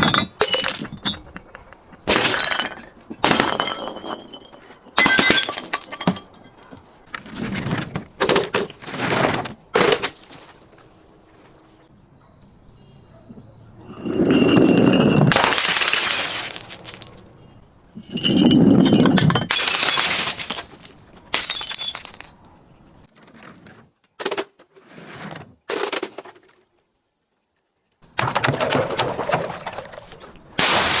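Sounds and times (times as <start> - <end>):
glass bottles shattering: 0.0 - 1.3, 2.1 - 6.6, 13.9 - 17.2, 18.0 - 22.4, 30.6 - 31.0.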